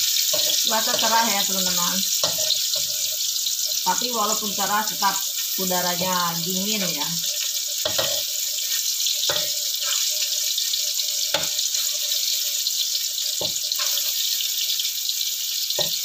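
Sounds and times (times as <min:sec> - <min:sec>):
oil sizzling in a wok: 0:00.0 - 0:16.0
spatula knocking against wok: 0:07.8 - 0:08.3.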